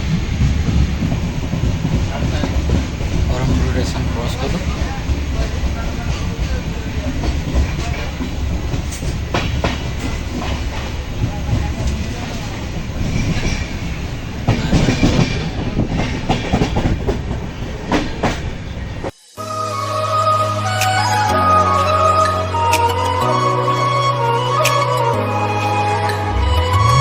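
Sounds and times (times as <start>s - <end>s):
wheels clacking over rail joints: 0.0s - 19.1s
train carriage rumbling: 0.0s - 19.2s.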